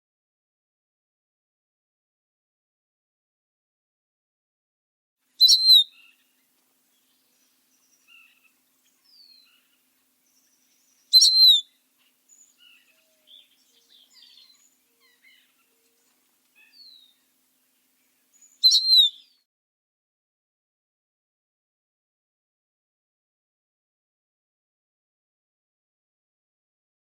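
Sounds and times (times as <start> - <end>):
loud high bird call: 5.4 - 6.1
faint bird chirps: 5.4 - 17.3, 18.0 - 19.5.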